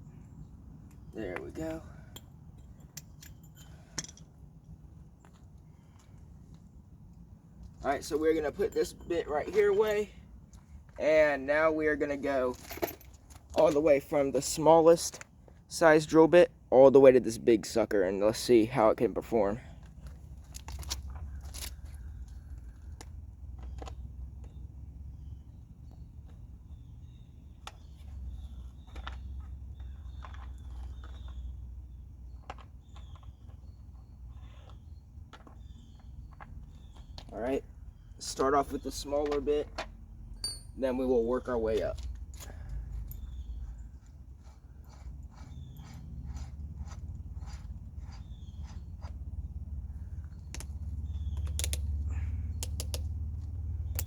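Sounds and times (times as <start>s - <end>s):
steady low hum: 39.9s - 54.0s
steady low rumble: 39.9s - 54.0s.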